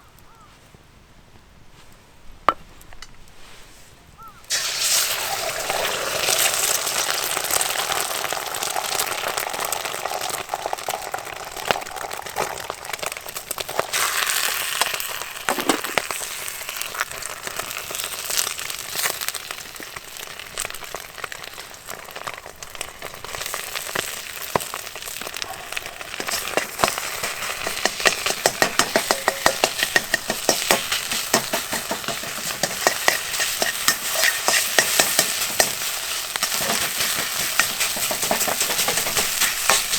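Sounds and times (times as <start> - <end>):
rice sizzling in a wok: 4.3 - 39.9
spatula scraping wok: 25.3 - 39.9.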